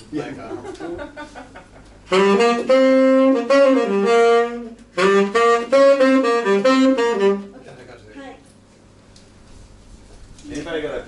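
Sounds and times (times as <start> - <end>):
saxophone held notes: 2.1 - 7.6.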